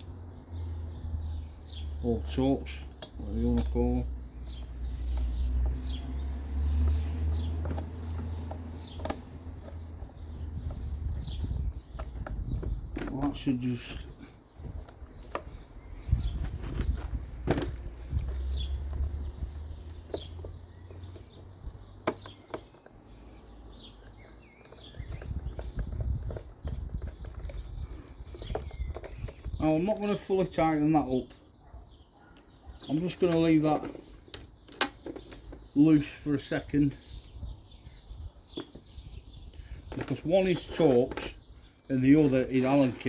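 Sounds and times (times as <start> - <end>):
hand tools and metal parts clicking: 2.0 - 17.0, 17.6 - 31.4, 32.4 - 36.3, 39.6 - 43.0
low rustling of handling: 4.4 - 30.4
bird chirps: 18.3 - 43.0.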